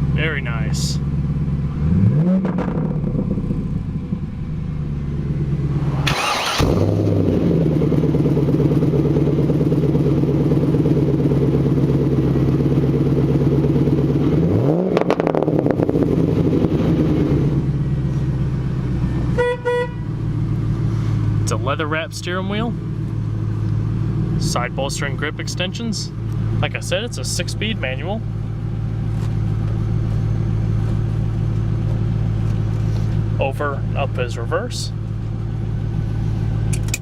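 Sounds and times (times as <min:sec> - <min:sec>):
car engine idling: 0:00.0 - 0:37.0
engine revs blipped: 0:01.4 - 0:04.1, 0:04.8 - 0:09.9, 0:12.6 - 0:17.8
loud burst of noise: 0:05.9 - 0:07.2.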